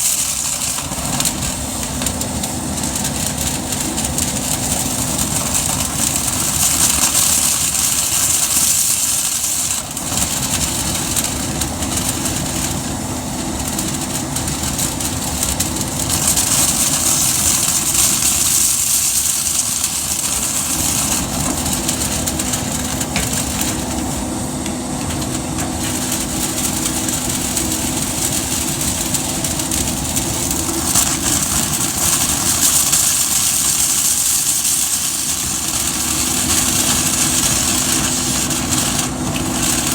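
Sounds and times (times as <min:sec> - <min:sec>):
cleaning machine air hiss: 0:00.0 - 0:39.9.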